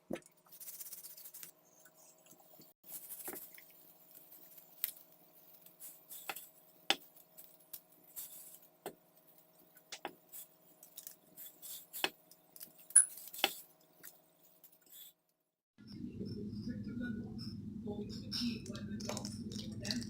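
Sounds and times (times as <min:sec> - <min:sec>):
faint steady hum: 0:15.8 - 0:20.0.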